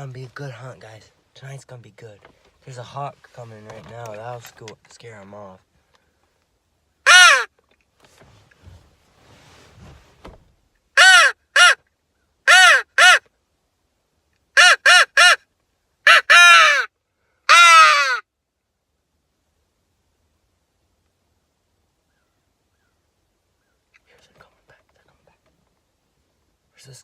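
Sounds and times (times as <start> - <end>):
crow call caws: 7.1 - 7.5, 16.1 - 16.9, 17.5 - 18.2.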